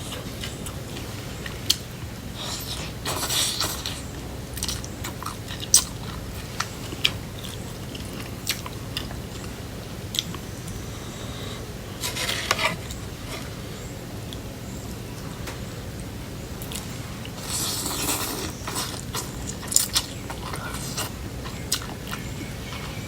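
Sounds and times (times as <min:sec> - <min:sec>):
chewing crunchy cucumber: 0:02.4 - 0:13.5, 0:16.6 - 0:23.0.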